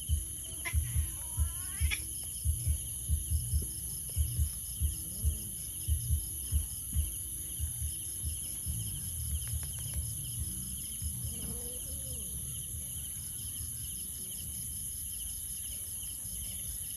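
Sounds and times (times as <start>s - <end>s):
crickets trilling: 0.0s - 16.9s
low soft thumps: 2.4s - 11.6s.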